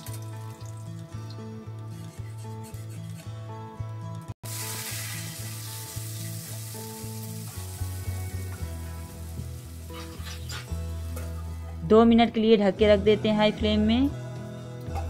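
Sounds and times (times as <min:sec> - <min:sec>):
soft background music: 0:00.0 - 0:15.0
potatoes sizzling in hot oil: 0:04.4 - 0:11.4.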